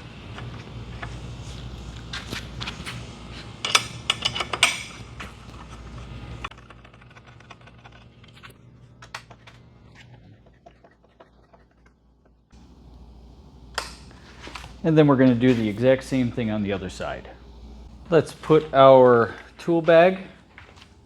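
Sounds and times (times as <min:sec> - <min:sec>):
low hum: 0:00.0 - 0:21.0
metal bolt and hex key clinking: 0:03.6 - 0:05.0.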